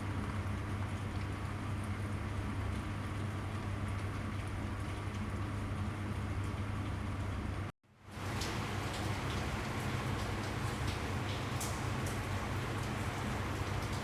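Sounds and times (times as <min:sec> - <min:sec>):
steady rain: 0:08.0 - 0:14.0.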